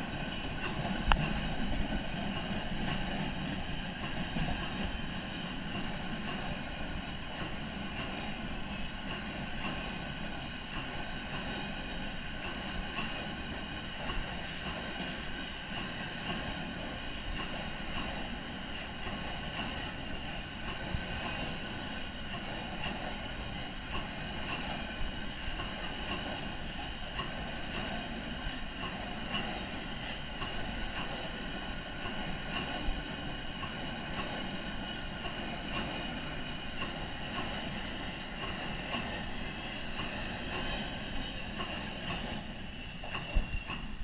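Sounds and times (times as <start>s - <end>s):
train rumbling on rails: 0.0s - 44.0s.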